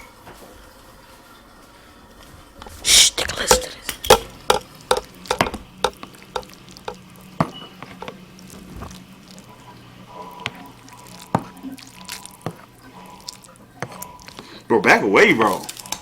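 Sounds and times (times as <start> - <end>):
fork clinking against bowl: 3.4 - 7.0.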